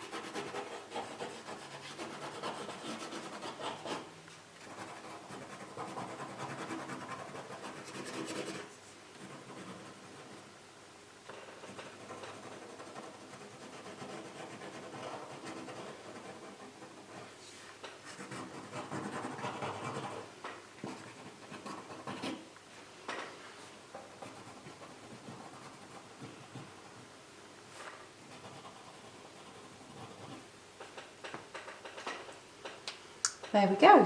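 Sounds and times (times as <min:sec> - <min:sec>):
pen nib scratching paper: 0:00.0 - 0:10.4, 0:11.3 - 0:17.3, 0:18.1 - 0:22.5, 0:24.1 - 0:26.9, 0:28.3 - 0:30.4.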